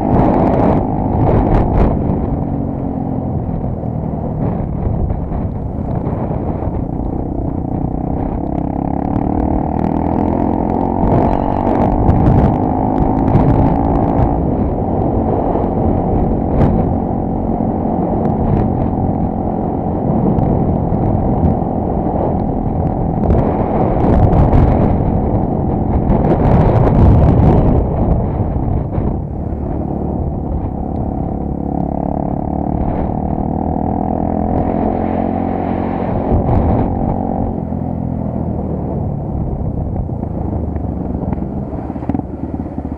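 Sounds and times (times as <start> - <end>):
motorcycle engine accelerating: 0.0 - 42.9
wind noise on microphone: 0.0 - 42.9.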